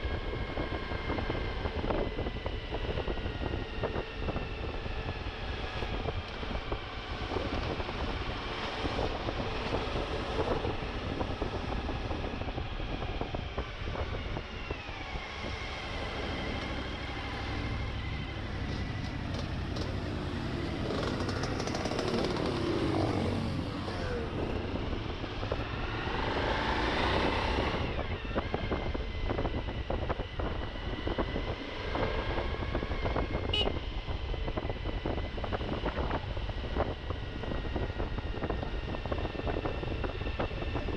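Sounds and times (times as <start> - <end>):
motorcycle engine revving: 13.8 - 33.8.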